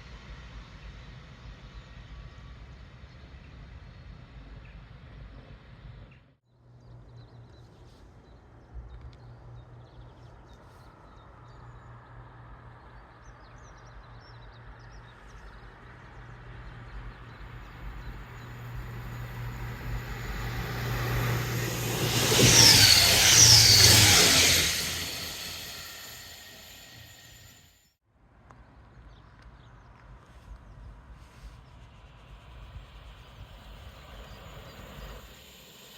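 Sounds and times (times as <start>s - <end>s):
train passing: 15.9s - 27.7s
short high squeals: 18.8s - 27.6s.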